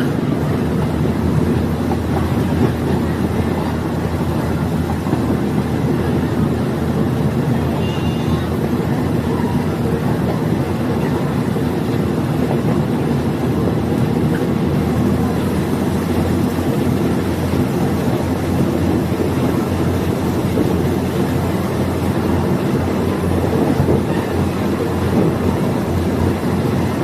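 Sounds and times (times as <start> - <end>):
train engine and wheels rumbling: 0.0 - 27.0.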